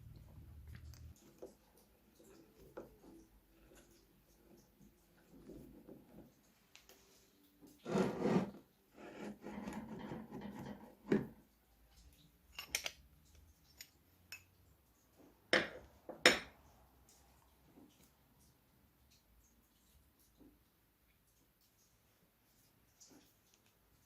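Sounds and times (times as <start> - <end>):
metal clinks and knocks: 12.5 - 14.5.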